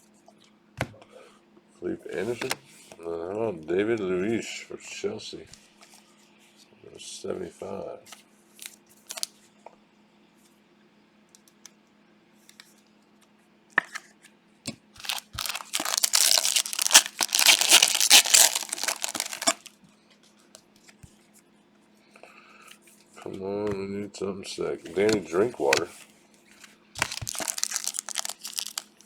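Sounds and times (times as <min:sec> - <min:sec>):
foil wrapper tearing and crinkling: 0:15.0 - 0:19.7, 0:27.0 - 0:29.0.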